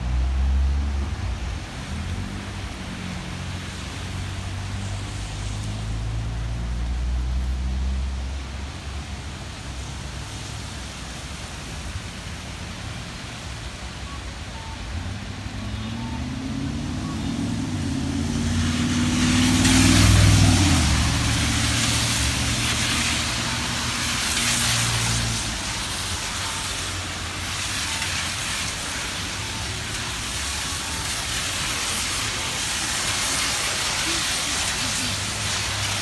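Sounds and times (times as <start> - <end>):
low hum of street traffic: 0.0 - 36.0
vehicle accelerating past: 14.9 - 26.6.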